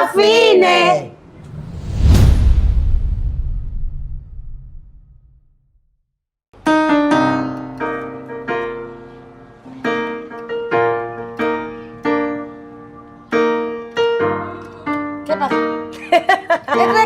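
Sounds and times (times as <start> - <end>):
piano notes and chords: 6.6 - 17.0.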